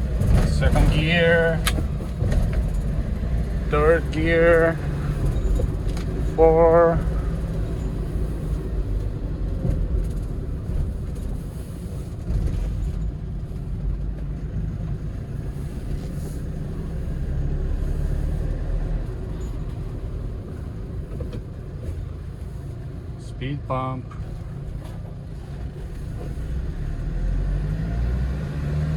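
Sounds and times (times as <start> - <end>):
truck engine and road rumble: 0.0 - 28.9.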